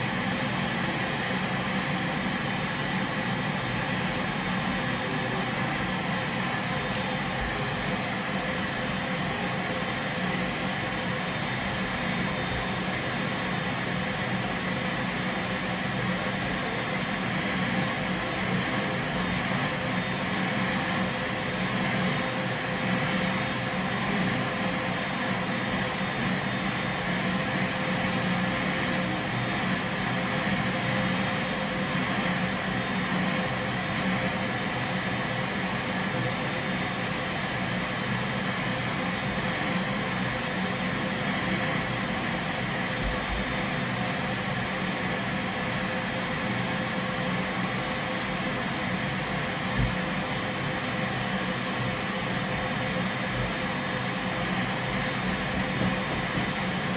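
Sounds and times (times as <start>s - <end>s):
vacuum cleaner running: 0.0s - 56.9s.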